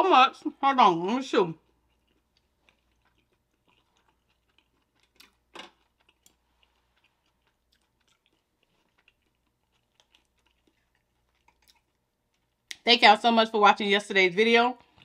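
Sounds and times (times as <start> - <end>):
close-up chewing: 1.2 - 12.8.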